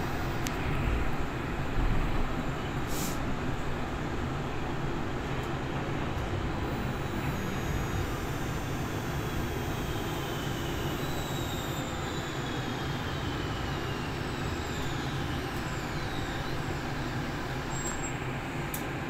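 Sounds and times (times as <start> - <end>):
faint high whines: 6.6 - 18.4.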